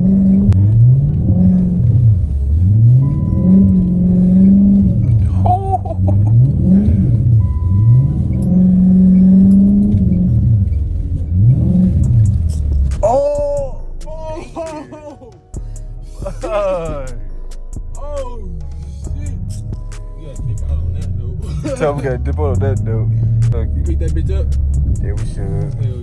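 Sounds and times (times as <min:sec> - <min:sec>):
car engine revving: 0:00.0 - 0:14.8, 0:15.4 - 0:26.0
voice or music: 0:04.0 - 0:07.4, 0:11.3 - 0:26.0.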